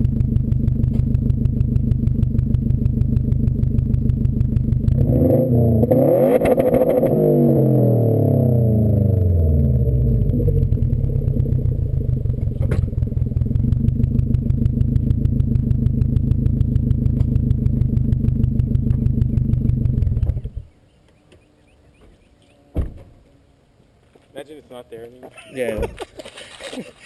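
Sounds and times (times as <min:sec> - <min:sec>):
car engine revving and idling: 0:00.0 - 0:20.6.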